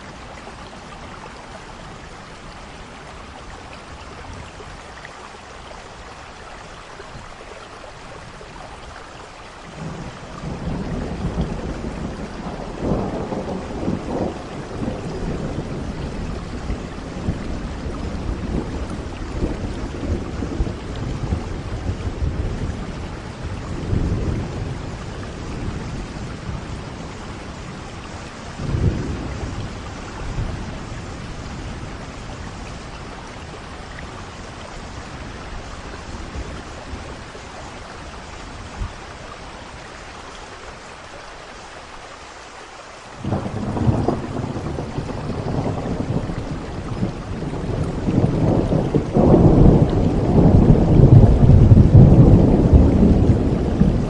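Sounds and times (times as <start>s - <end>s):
rain hiss: 0.0s - 54.0s
rolling thunder: 9.8s - 39.0s, 43.2s - 54.0s.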